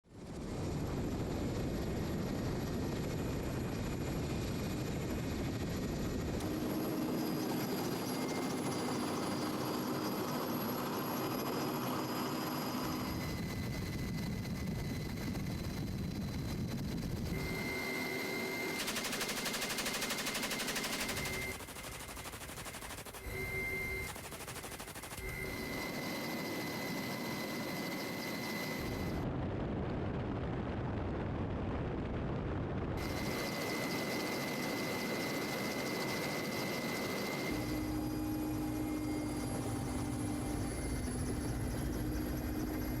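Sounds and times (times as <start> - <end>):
engine and rotor noise: 0.1 - 29.4, 33.0 - 43.0
rapid machine-gun fire: 18.8 - 23.3, 23.9 - 25.3.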